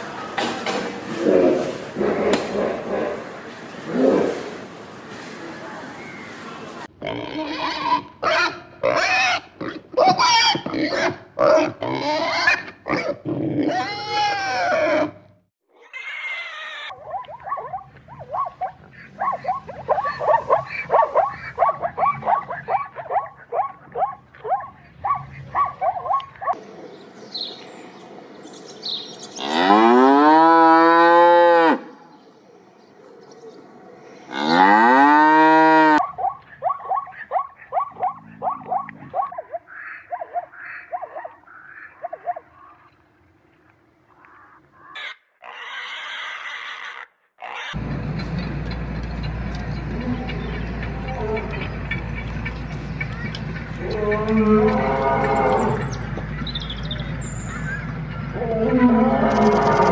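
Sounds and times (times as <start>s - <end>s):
cow mooing: 29.4s - 31.9s, 34.3s - 36.0s, 53.8s - 55.9s, 58.4s - 59.9s.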